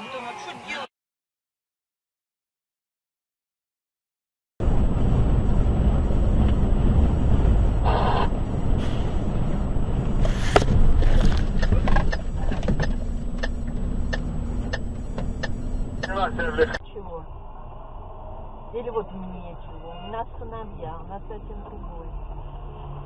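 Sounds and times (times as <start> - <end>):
car road and engine rumble: 4.6 - 23.0.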